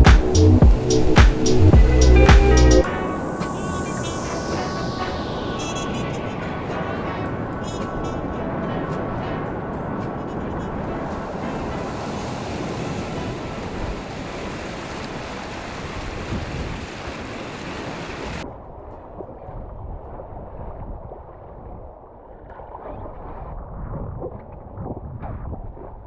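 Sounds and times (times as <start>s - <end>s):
rushing whitewater: 2.8s - 18.4s.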